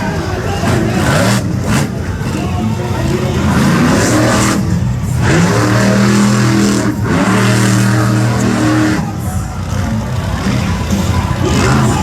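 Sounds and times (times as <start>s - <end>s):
monster truck engine revving: 0.0s - 12.0s.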